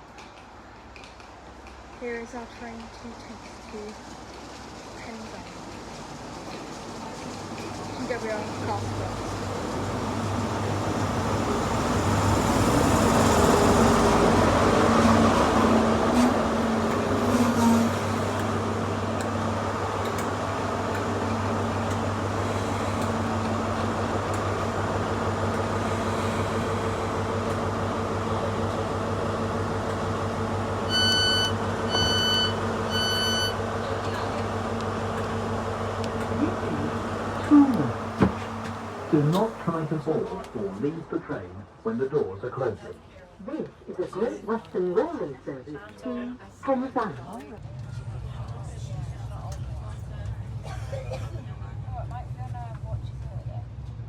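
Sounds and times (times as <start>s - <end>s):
train idling hum: 0.0s - 54.0s
short electronic beeps: 30.9s - 33.6s.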